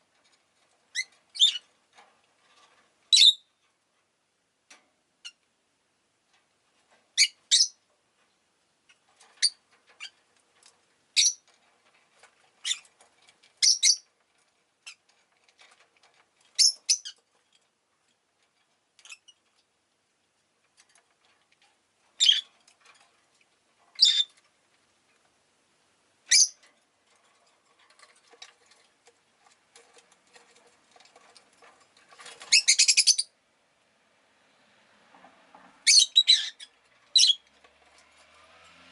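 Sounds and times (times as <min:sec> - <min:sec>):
lovebirds chirping: 0:00.9 - 0:01.6, 0:03.1 - 0:03.5, 0:11.2 - 0:11.4, 0:13.6 - 0:14.1, 0:16.6 - 0:17.2, 0:22.2 - 0:22.5, 0:24.0 - 0:24.3, 0:26.3 - 0:26.6, 0:32.4 - 0:33.3, 0:35.8 - 0:37.4.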